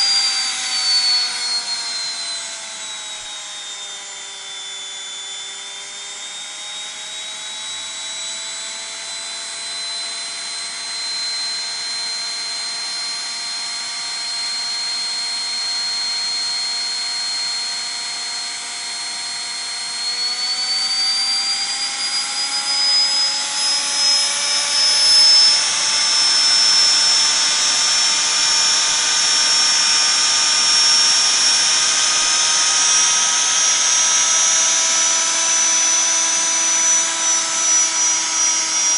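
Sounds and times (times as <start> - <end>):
washing machine motor whine: 0.0 - 38.9.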